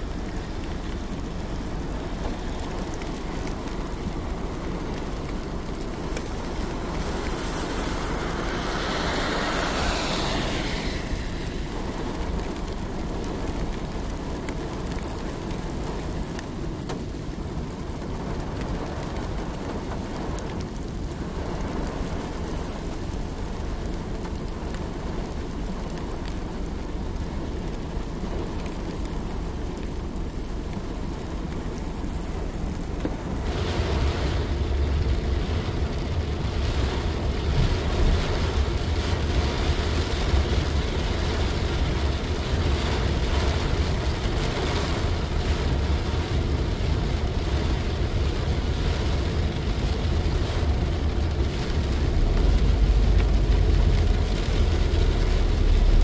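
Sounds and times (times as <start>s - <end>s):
steady rain falling: 0.0s - 56.0s
rushing swell: 7.0s - 11.8s
low rumble: 49.9s - 56.0s.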